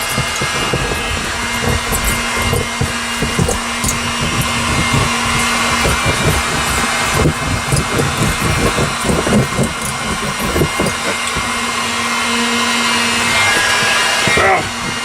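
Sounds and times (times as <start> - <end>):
hot-air blower hissing: 0.0 - 15.0
low knocks and rubbing: 0.0 - 15.0.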